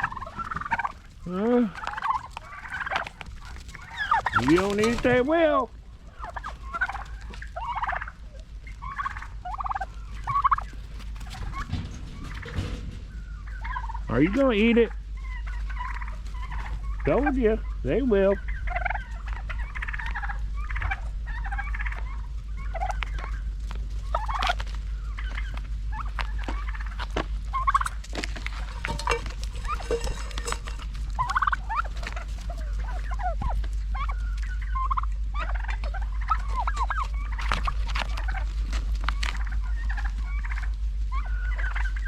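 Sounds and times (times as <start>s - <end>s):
turkeys gobbling and chirping: 0.0s - 42.0s
low rumble: 8.2s - 16.9s, 18.6s - 41.3s.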